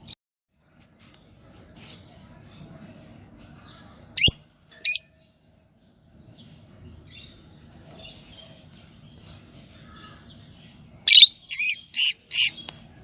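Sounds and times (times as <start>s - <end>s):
birds twittering: 3.4s - 13.0s
lovebirds shrill calls: 4.2s - 5.1s, 11.1s - 12.7s.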